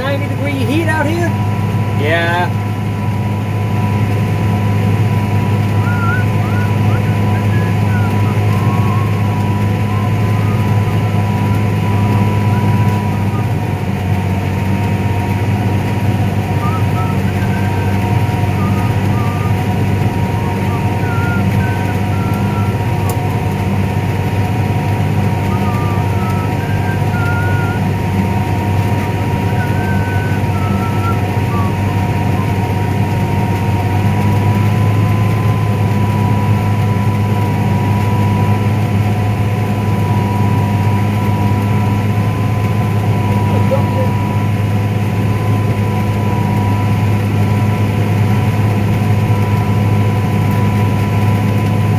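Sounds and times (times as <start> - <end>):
tractor engine droning: 0.0 - 51.9.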